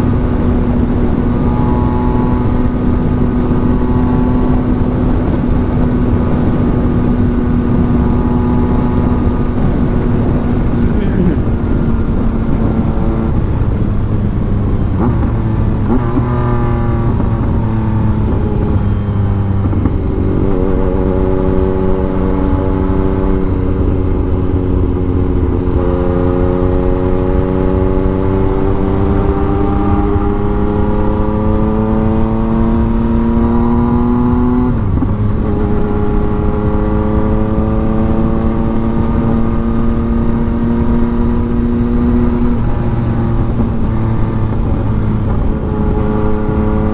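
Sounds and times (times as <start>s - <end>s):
motorcycle engine accelerating: 0.0s - 46.9s
wind rush: 0.0s - 46.9s.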